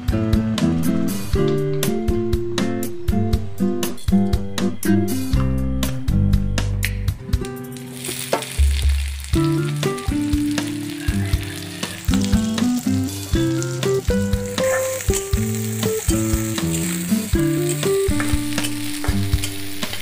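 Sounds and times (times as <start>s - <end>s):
plucked background music: 0.0s - 20.0s
onion sizzling in hot oil: 7.6s - 20.0s.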